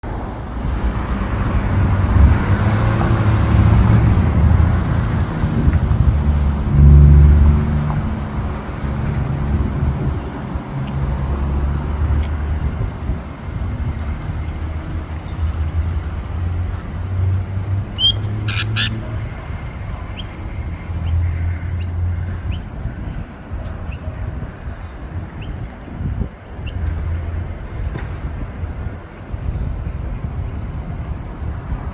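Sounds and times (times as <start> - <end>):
parrot squawking: 18.0 - 19.0.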